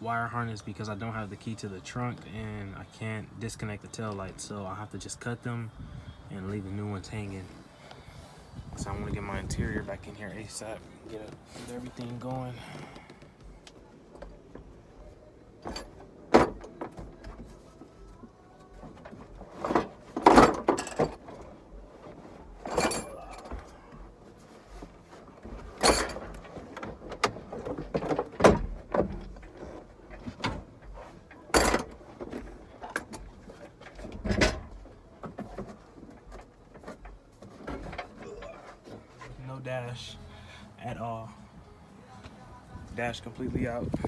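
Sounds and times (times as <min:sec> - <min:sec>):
car interior parts knocking and rattling: 0:08.8 - 0:39.4.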